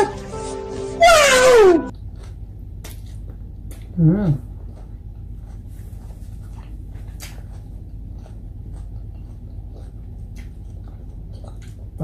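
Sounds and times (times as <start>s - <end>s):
person chewing food: 1.8s - 12.0s
steady low hum: 1.8s - 12.0s
small mouth clicks and smacks: 1.9s - 4.0s, 6.5s - 12.0s.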